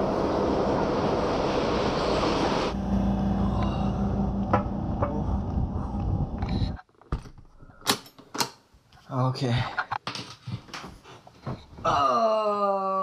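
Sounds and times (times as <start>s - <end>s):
standing train low hum: 0.0s - 6.8s
train running rush and rumble: 0.0s - 6.8s.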